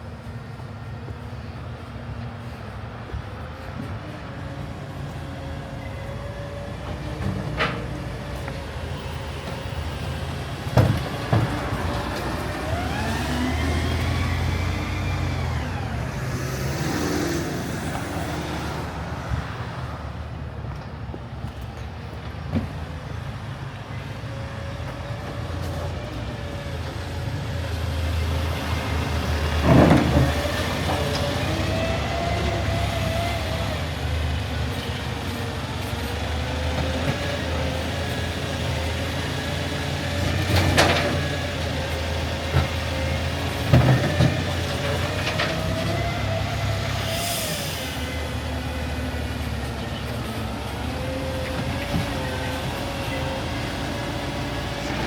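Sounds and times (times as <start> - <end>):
garbage truck diesel engine: 0.0 - 55.0
hydraulic whines: 3.7 - 19.7.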